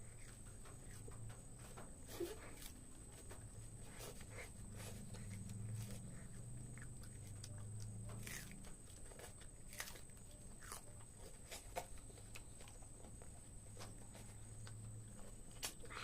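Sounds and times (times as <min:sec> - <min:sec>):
faint low hum: 0:00.0 - 0:16.0
person chewing crunchy food: 0:03.9 - 0:16.0.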